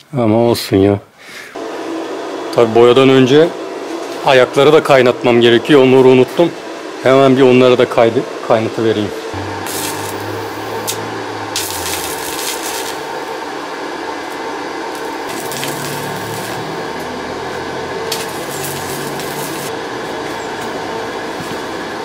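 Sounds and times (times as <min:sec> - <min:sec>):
electrical hum: 0:01.6 - 0:22.0
arc welding crackling hiss: 0:09.4 - 0:19.7.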